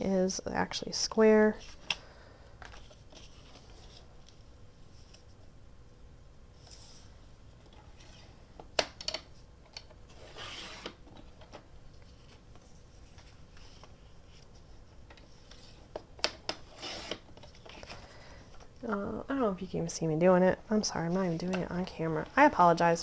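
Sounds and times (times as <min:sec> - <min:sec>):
paper rubbing and scraping: 0:10.1 - 0:11.0, 0:16.7 - 0:17.8.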